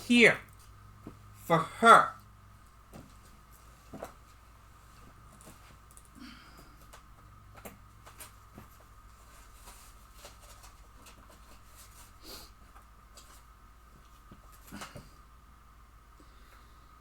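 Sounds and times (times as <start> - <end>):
faint clicks and rustles: 2.6 - 15.2.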